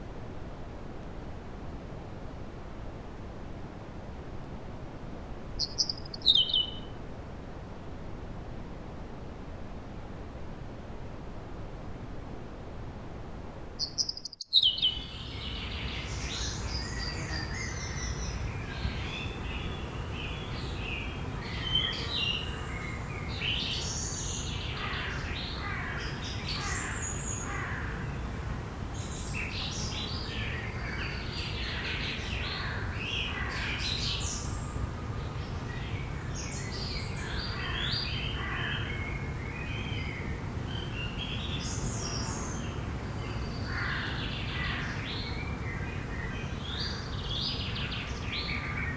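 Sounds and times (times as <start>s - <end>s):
low background hiss: 0.0s - 48.9s
songbirds chirping: 5.6s - 7.0s, 13.8s - 48.9s.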